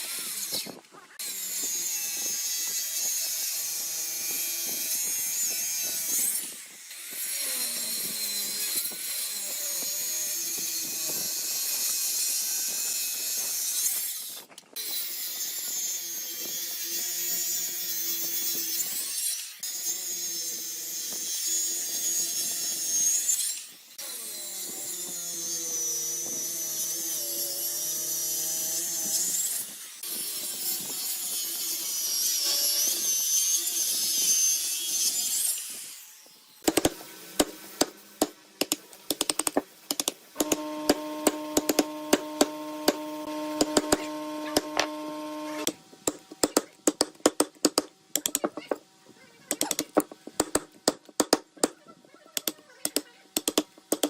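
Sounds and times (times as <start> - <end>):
electric power tool cutting wood: 0.0 - 46.6
sharp taps and knocks: 36.6 - 44.9, 46.0 - 48.8, 49.5 - 51.8, 52.4 - 54.0
steady motor hum: 40.4 - 46.0.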